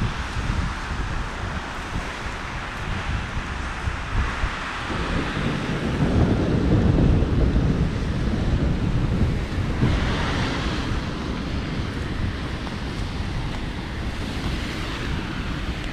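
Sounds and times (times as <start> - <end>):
heavy rain pouring: 0.0 - 15.9
thunder rumble: 4.8 - 15.9.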